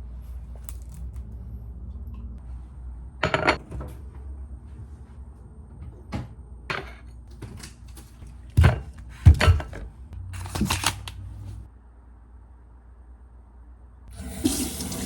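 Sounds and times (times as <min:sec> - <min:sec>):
kitchen items knocking and clattering: 0:03.2 - 0:03.9, 0:06.1 - 0:11.0.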